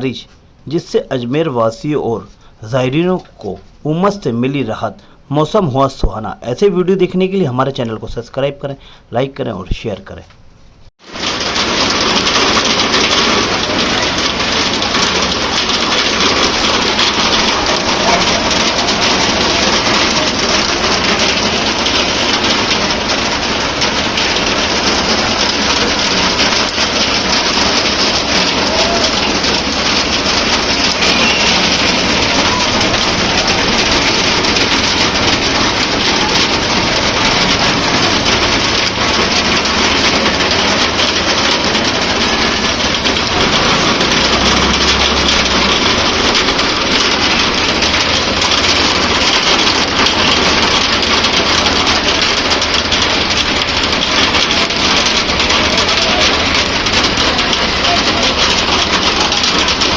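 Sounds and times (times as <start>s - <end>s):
steady rain falling: 11.0s - 59.9s.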